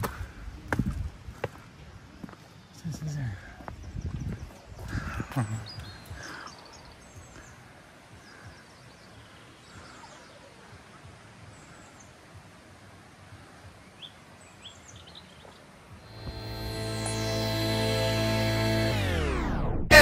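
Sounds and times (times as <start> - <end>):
birds chirping: 1.5 - 12.3.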